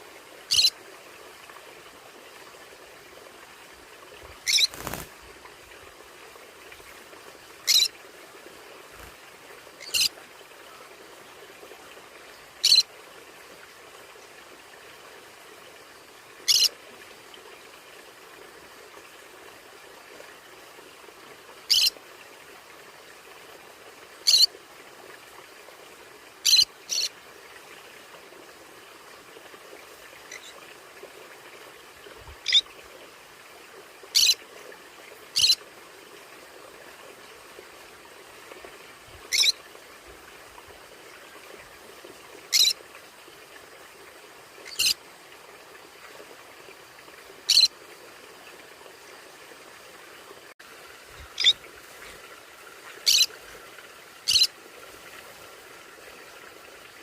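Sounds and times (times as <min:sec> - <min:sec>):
faint hiss: 0:00.0 - 0:57.0
parrot high-pitched calls: 0:00.5 - 0:00.7, 0:04.4 - 0:05.0, 0:07.6 - 0:07.9, 0:09.8 - 0:10.1, 0:12.6 - 0:12.8, 0:16.5 - 0:16.7, 0:21.7 - 0:21.9, 0:24.3 - 0:24.5, 0:32.4 - 0:32.6, 0:34.2 - 0:34.4, 0:35.4 - 0:35.6, 0:39.3 - 0:39.6, 0:42.5 - 0:42.8, 0:44.7 - 0:45.0, 0:47.5 - 0:47.7, 0:51.4 - 0:51.6, 0:53.0 - 0:53.3, 0:54.3 - 0:54.5.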